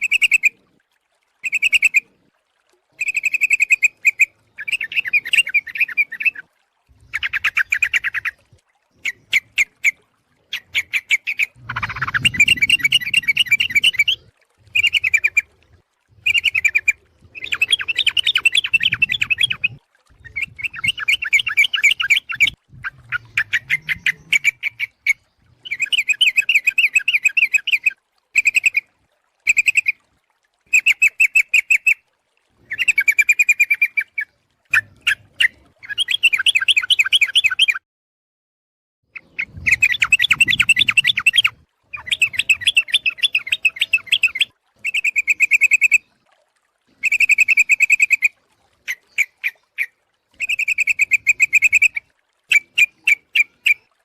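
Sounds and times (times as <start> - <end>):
bird bubbly chattering calls: 1.4 - 2.0, 3.0 - 15.6, 16.2 - 28.9, 29.5 - 30.0, 32.6 - 37.8, 39.2 - 46.1, 47.0 - 53.9.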